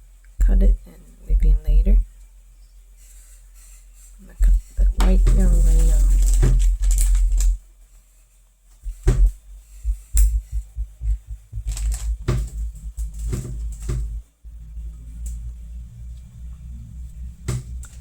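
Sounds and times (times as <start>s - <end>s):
low thumps and rumble: 4.4s - 7.6s, 8.8s - 18.0s
handling noise: 8.8s - 15.6s
clicks and taps: 8.9s - 14.2s.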